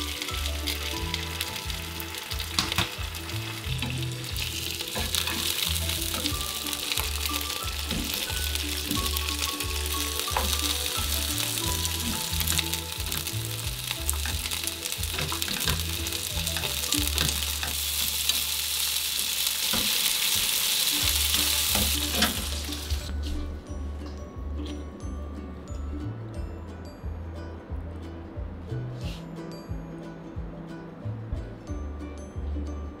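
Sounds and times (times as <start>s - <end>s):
fish and vegetables sizzling in pan: 0.0s - 23.1s.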